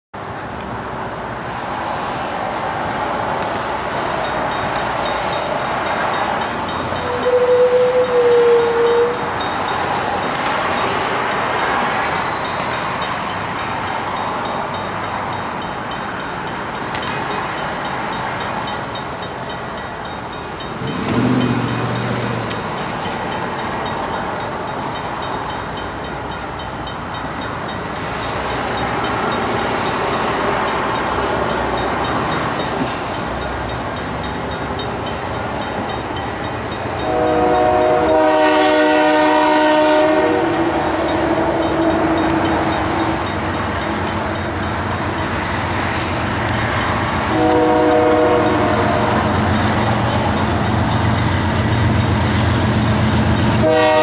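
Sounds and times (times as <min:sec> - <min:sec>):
train rumble and hiss: 0:00.2 - 0:54.0
fast even ringing: 0:03.9 - 0:38.2
train horn: 0:06.6 - 0:09.5, 0:37.0 - 0:43.0, 0:47.3 - 0:49.6, 0:53.5 - 0:54.0.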